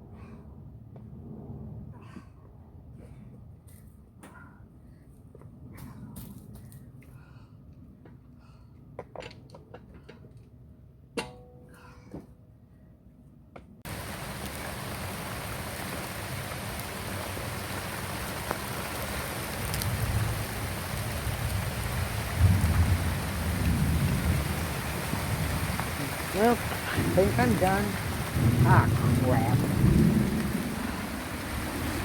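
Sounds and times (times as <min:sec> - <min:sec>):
low rumble: 0:00.0 - 0:03.7
metallic clunk with ring: 0:11.2 - 0:11.8
loud steady hiss: 0:13.9 - 0:21.3.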